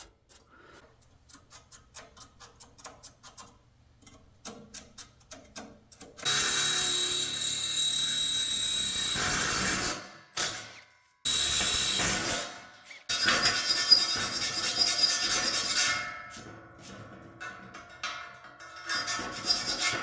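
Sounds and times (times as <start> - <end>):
scratching marks on steel: 0.0 - 7.1, 11.6 - 17.0, 18.8 - 20.0
power saw cutting steel: 6.2 - 15.9.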